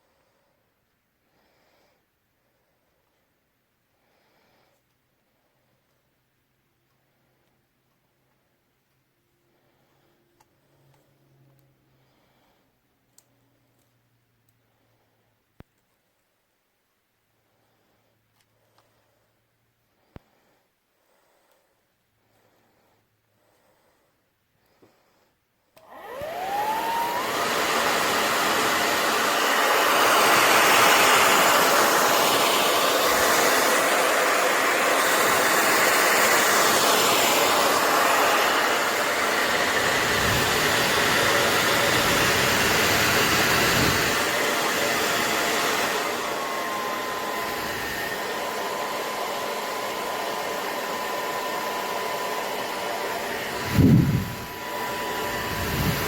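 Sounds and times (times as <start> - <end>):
hair dryer blowing: 25.8 - 56.0.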